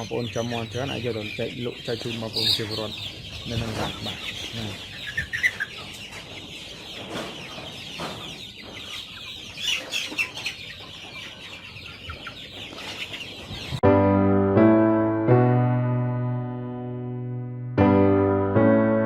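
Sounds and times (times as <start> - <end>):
chickens clucking: 0.0 - 13.8
electric piano music: 13.8 - 19.0.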